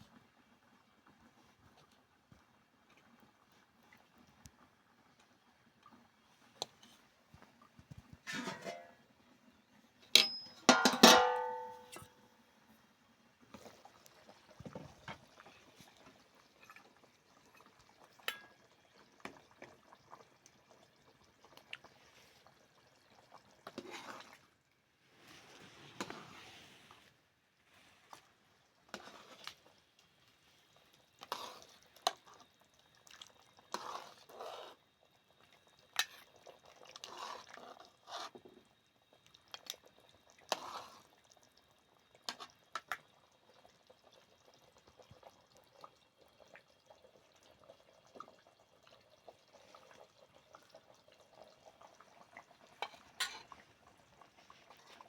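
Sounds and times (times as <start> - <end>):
liquid pouring and sloshing: 13.5 - 55.0.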